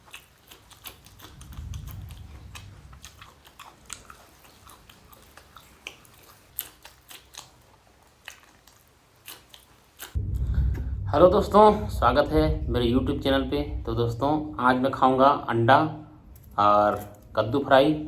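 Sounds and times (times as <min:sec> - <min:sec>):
person chewing: 0:00.0 - 0:10.2
low rumble: 0:01.0 - 0:03.6, 0:10.2 - 0:18.0.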